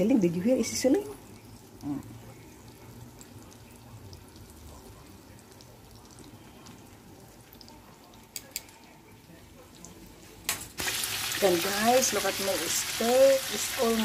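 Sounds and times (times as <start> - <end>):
steaks sizzling in butter: 10.8 - 14.0.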